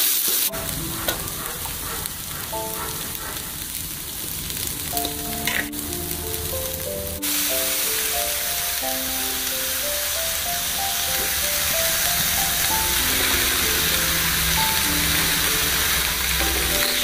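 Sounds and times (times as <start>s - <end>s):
light background music: 0.5s - 17.0s
paste sizzling in a wok: 4.6s - 17.0s.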